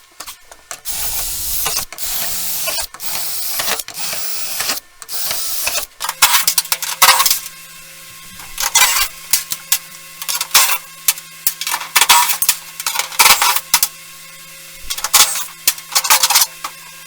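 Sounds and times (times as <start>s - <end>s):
power tool whirring: 0.2s - 7.6s.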